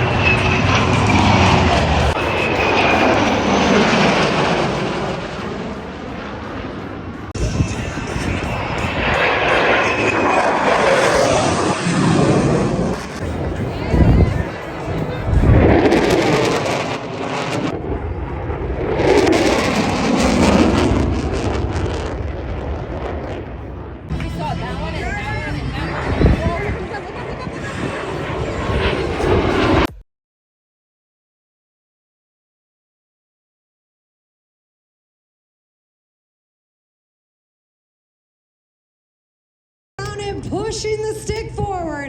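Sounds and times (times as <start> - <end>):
low engine drone: 0.0 - 29.9
aircraft roar with high whine: 0.0 - 30.0, 40.0 - 42.0.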